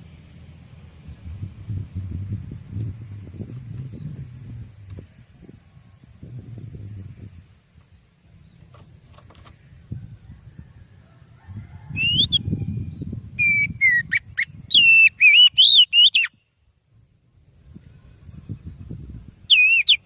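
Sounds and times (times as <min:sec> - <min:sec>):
low background rumble: 0:00.0 - 0:13.4
bird singing whistled phrases: 0:12.0 - 0:12.5, 0:13.4 - 0:16.5, 0:19.5 - 0:20.0.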